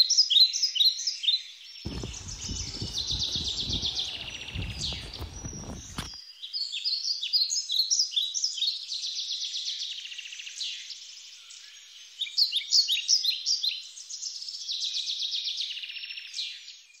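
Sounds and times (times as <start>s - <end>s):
low rumble: 1.9s - 6.1s
songbirds chirping: 1.9s - 6.2s.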